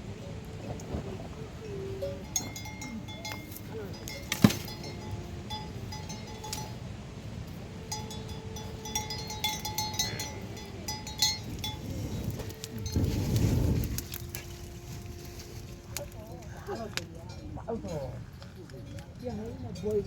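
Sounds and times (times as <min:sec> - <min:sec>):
low background noise: 0:00.0 - 0:20.0
small metal bells ringing: 0:01.5 - 0:13.4, 0:16.6 - 0:20.0.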